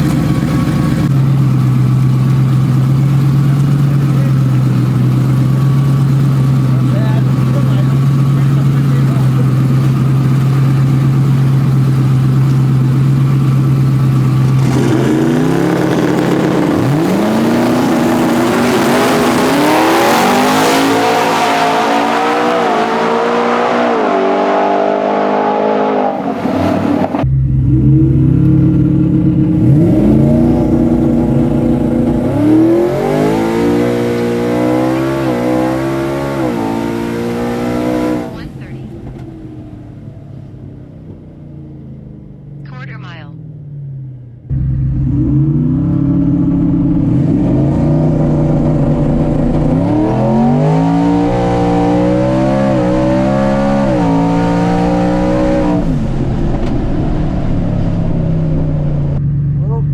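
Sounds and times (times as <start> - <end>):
truck engine revving and launching: 3.3 - 39.3, 43.9 - 59.2.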